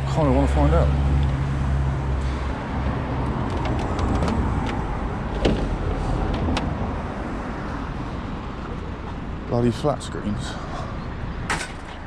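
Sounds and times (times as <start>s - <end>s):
outdoor background noise: 0.0s - 12.0s
light knocks and clicks of junk: 11.5s - 12.0s.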